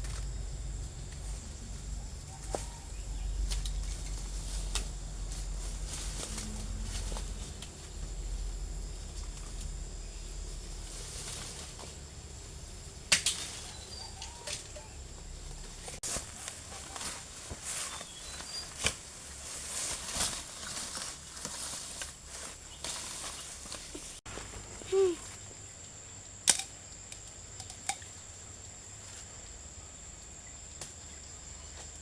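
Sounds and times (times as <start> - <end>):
sharp snaps and knocks: 13.0 - 14.7, 18.7 - 19.0, 26.4 - 28.2, 30.8 - 31.0.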